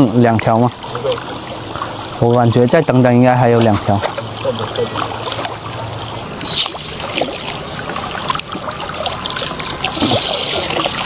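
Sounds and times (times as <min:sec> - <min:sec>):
low steady hum: 0:00.0 - 0:11.0
rush of water: 0:00.0 - 0:11.0
water splashing and trickling: 0:00.0 - 0:11.0.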